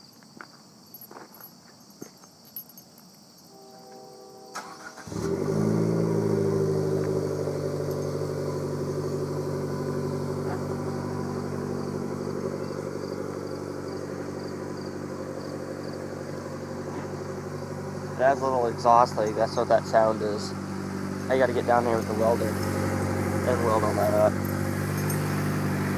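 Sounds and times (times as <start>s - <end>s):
car engine cranking and idling: 4.5s - 25.9s.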